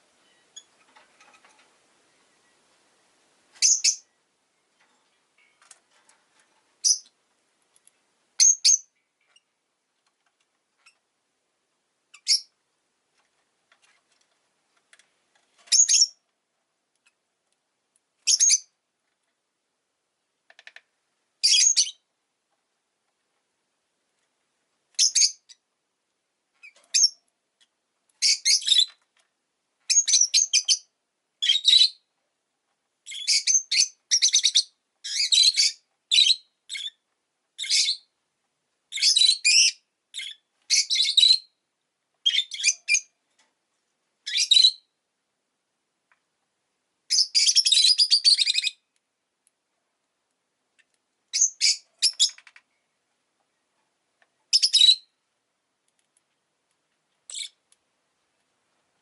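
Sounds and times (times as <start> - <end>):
bird chirping: 0.1 - 2.7, 3.6 - 5.7, 6.8 - 7.2, 8.4 - 9.5, 12.1 - 12.6, 15.7 - 16.2, 18.2 - 18.8, 21.4 - 22.1, 25.0 - 25.6, 26.6 - 27.3, 28.2 - 29.0, 29.9 - 32.1, 33.0 - 37.0, 37.6 - 38.1, 38.9 - 41.6, 42.2 - 43.1, 44.2 - 45.0, 47.1 - 48.9, 51.3 - 53.0, 54.5 - 55.2, 57.3 - 57.6.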